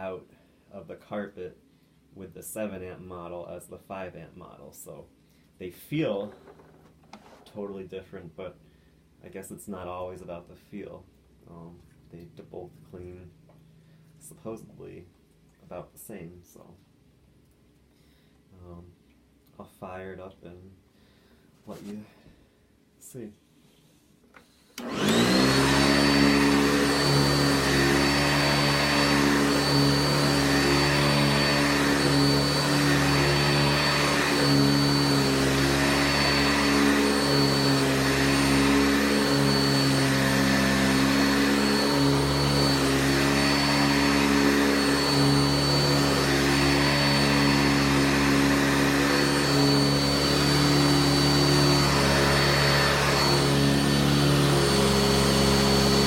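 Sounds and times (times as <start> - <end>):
upright vacuum running with high whine: 24.8 - 56.0.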